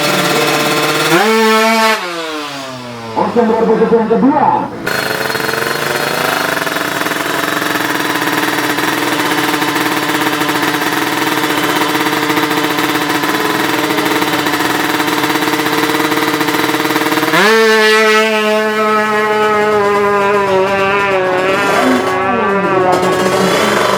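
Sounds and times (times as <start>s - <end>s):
two-stroke engine at high revs: 0.0s - 23.9s.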